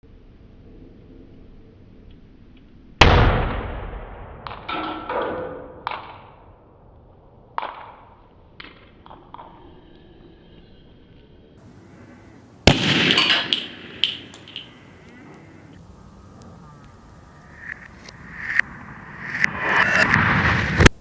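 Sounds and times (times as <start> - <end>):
sharp echoing bang: 3.0 - 6.1, 12.6 - 15.7.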